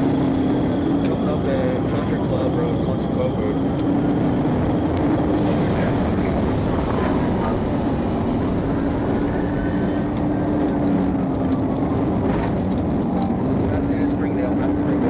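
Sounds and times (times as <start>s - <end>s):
car engine running: 0.0s - 15.0s
tyre and wind noise: 3.5s - 14.2s.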